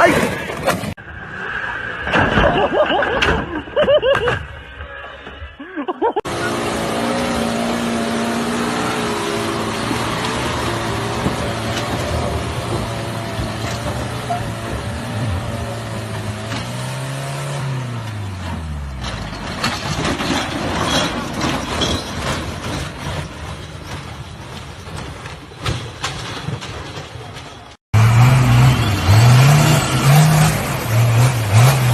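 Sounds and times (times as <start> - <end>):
heavy vehicle engine running: 6.3 - 19.9
sharp knocks and clatter: 9.3 - 17.0, 19.0 - 27.8.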